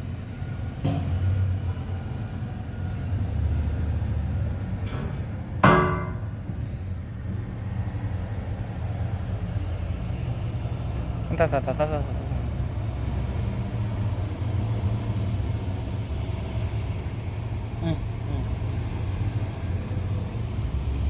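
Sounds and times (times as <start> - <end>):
heavy machinery engine rumble: 0.0 - 21.0
metallic clang: 4.9 - 6.5.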